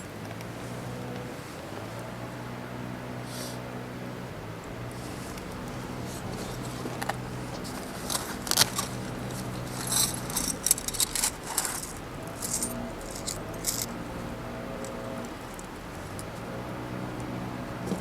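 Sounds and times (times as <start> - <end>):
steady low hum: 0.0 - 18.0
metal clinking and rattling: 4.9 - 16.4.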